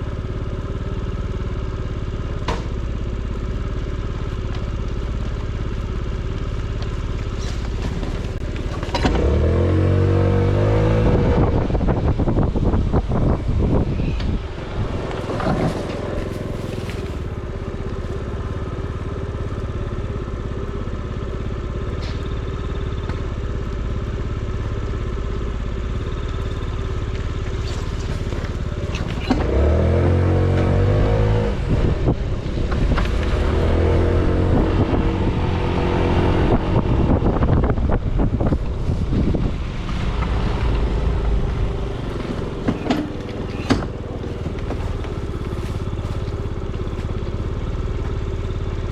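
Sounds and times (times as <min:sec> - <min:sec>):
small motorbike engine revving: 0:06.8 - 0:18.4, 0:25.9 - 0:48.9.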